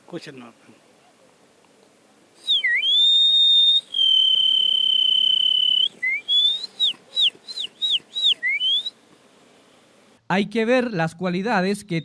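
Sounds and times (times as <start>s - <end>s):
man whistling bird call: 2.4s - 9.0s.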